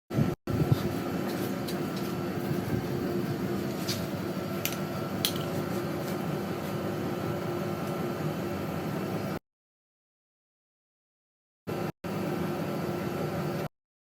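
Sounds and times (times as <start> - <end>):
factory machinery humming: 0.2 - 9.4.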